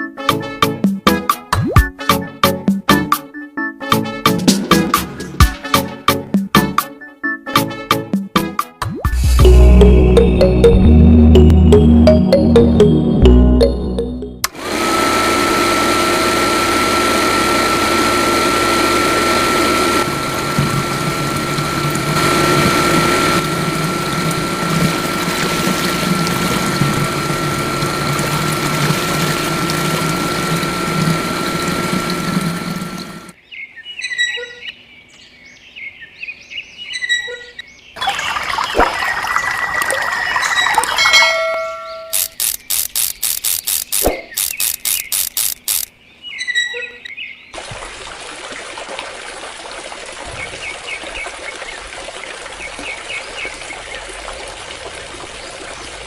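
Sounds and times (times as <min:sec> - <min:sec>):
electric water pump whining: 0:13.7 - 0:33.4, 0:38.0 - 0:45.9
water pouring: 0:20.0 - 0:33.3, 0:38.0 - 0:42.1
chirps: 0:36.0 - 0:47.4
clicking: 0:42.1 - 0:45.9.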